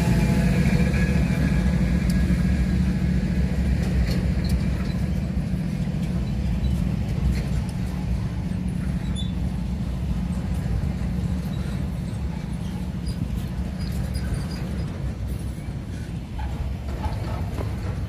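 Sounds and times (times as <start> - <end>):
freight train wheels rumbling: 0.0 - 18.0.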